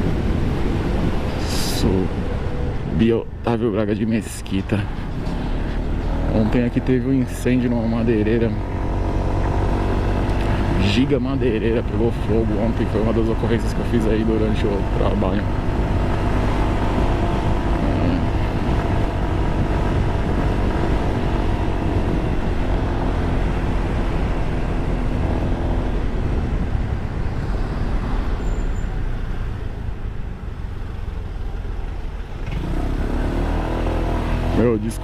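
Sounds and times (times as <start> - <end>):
wind and road noise: 0.0 - 35.0.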